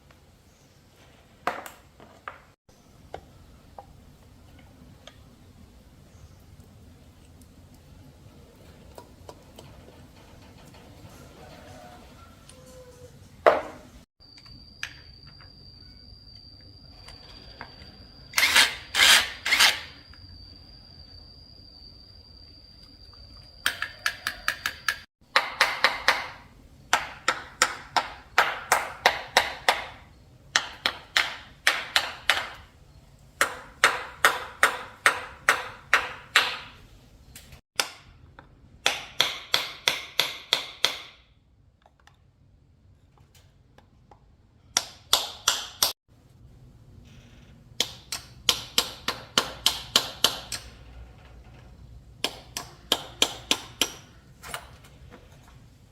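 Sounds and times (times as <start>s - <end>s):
faint high whine: 14.2s - 24.5s
hammer tapping on metal: 52.2s - 54.2s.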